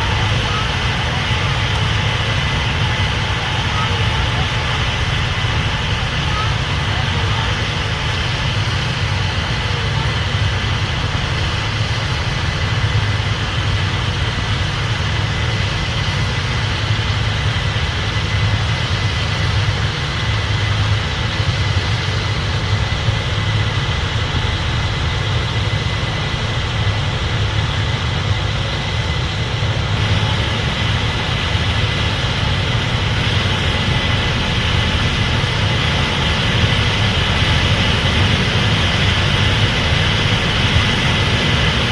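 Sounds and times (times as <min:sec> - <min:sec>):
combine engine drone: 0:00.0 - 0:41.9
thin steady whine: 0:00.0 - 0:41.9.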